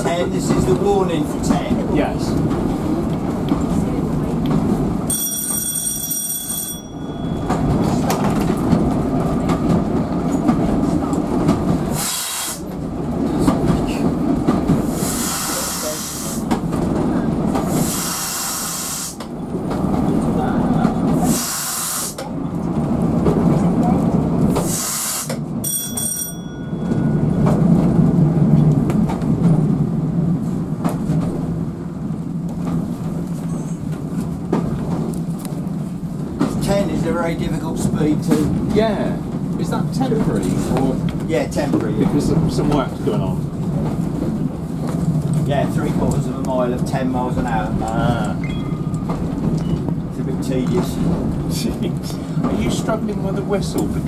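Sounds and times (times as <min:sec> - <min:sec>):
rail joint clicks: 0:00.0 - 0:30.0, 0:30.6 - 0:54.0
wheels rumbling on rail: 0:00.0 - 0:54.0.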